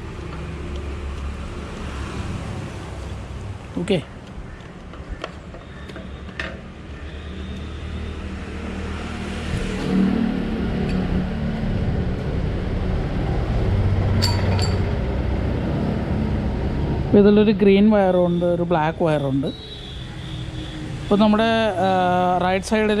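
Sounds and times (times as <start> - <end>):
clicks and taps of parts: 4.2 - 6.6
low vehicle engine hum: 8.3 - 18.5
faint clinks: 14.2 - 14.9.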